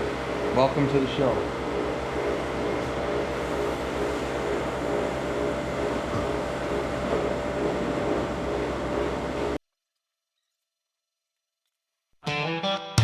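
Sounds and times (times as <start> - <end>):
motor humming steadily: 0.0 - 9.6.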